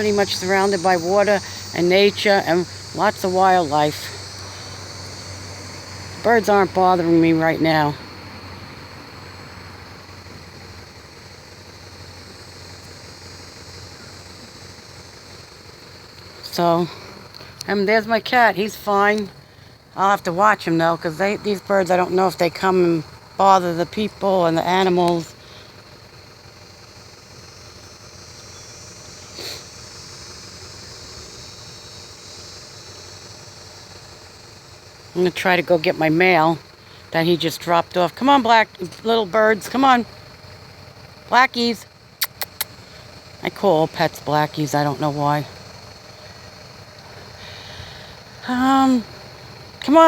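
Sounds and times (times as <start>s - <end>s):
faint thin high whine: 0.0s - 20.5s
even hiss: 0.0s - 50.0s
high insect drone: 0.0s - 50.0s.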